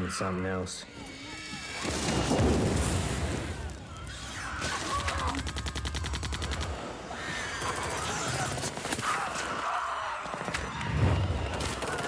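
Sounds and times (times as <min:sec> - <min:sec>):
rapid automatic gunfire: 0:04.6 - 0:06.9, 0:11.6 - 0:12.0.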